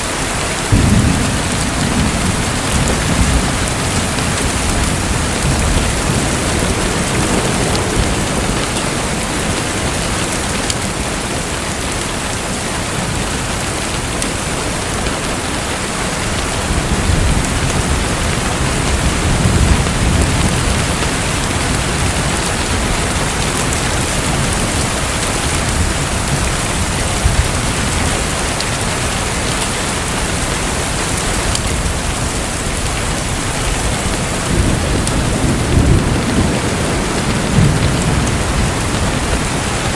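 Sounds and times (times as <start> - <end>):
rushing water: 0.0 - 39.9
low rumbles: 0.6 - 8.8.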